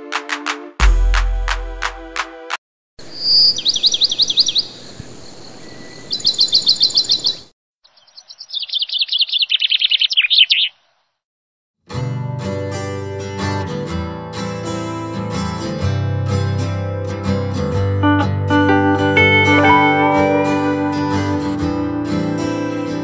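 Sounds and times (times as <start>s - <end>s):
birds chirping: 3.0s - 11.2s.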